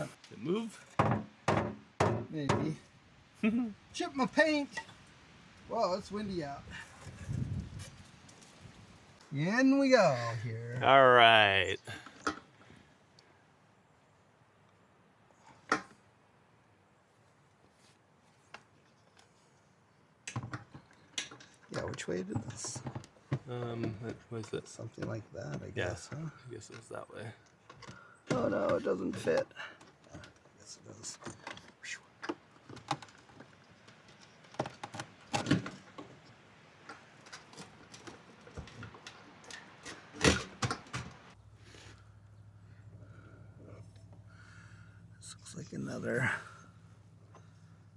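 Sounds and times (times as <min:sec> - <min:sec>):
clicks and knocks of car parts: 0:00.9 - 0:02.8
faint background hiss: 0:02.3 - 0:07.0.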